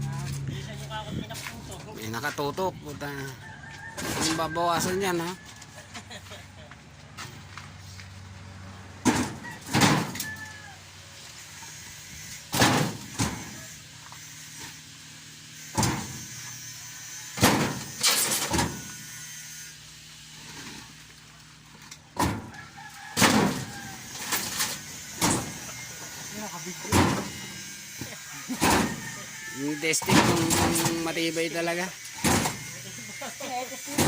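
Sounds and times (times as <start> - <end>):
truck engine idling: 0.0 - 3.4
heavy bangs and thuds: 26.9 - 27.4, 30.0 - 31.0.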